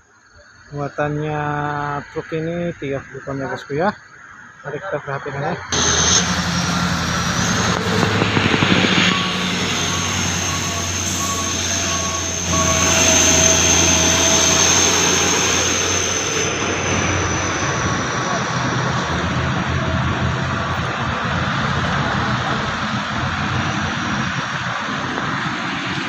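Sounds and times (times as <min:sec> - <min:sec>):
high steady whine: 0:00.0 - 0:26.0
diesel truck engine running: 0:05.7 - 0:26.0.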